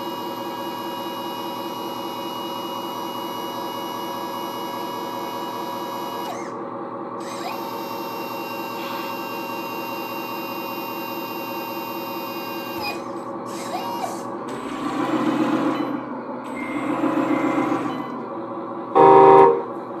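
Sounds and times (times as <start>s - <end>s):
electric motor and pump whining: 0.0s - 18.4s
short loud tone: 19.0s - 19.7s.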